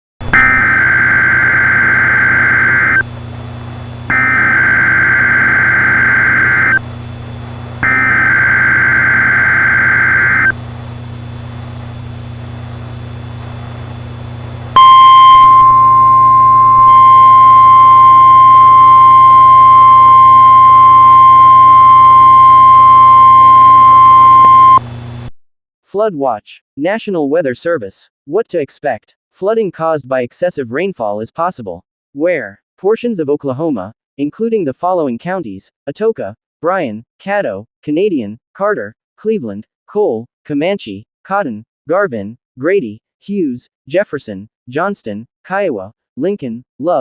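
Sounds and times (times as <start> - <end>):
loud alarm tone: 0.3 - 3.0, 4.1 - 6.8, 7.8 - 10.6, 14.8 - 24.8
low hum: 0.4 - 25.3.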